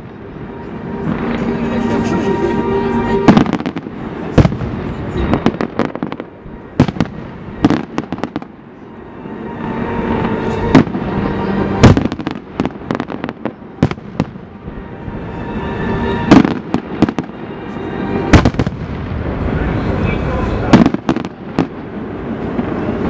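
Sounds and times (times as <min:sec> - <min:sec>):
fireworks crackle: 0:00.0 - 0:08.6, 0:09.7 - 0:14.7, 0:15.8 - 0:23.0
firecracker bangs: 0:03.3 - 0:08.5, 0:11.8 - 0:14.5, 0:18.3 - 0:19.4, 0:20.7 - 0:21.8.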